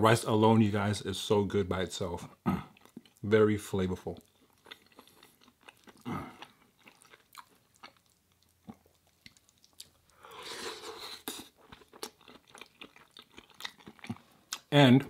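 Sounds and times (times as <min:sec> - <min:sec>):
person chewing food: 0:02.4 - 0:03.2, 0:04.1 - 0:14.7
wet mouth clicks and smacks: 0:06.9 - 0:10.0.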